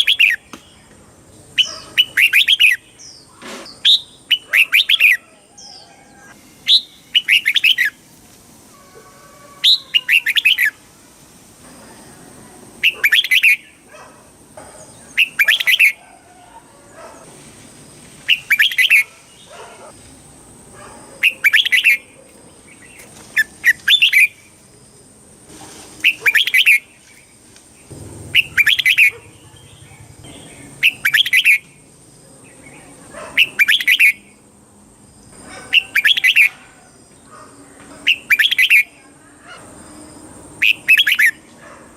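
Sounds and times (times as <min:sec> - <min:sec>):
bird singing warbled phrases: 0:00.0 - 0:05.9, 0:06.6 - 0:08.0, 0:09.6 - 0:10.8, 0:12.8 - 0:13.9, 0:14.9 - 0:16.0, 0:18.3 - 0:19.9, 0:21.2 - 0:24.6, 0:26.0 - 0:34.4, 0:35.5 - 0:36.7, 0:37.9 - 0:39.6, 0:40.6 - 0:41.4.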